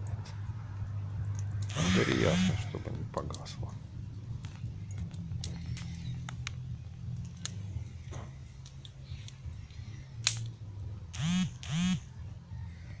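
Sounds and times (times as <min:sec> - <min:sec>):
campfire crackling and snapping: 0:03.1 - 0:11.0.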